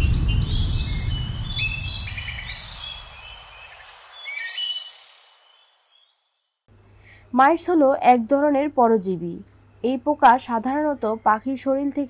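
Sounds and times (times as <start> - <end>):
low rumble of a boom: 0.0 - 3.6
birds chirping: 0.0 - 6.5.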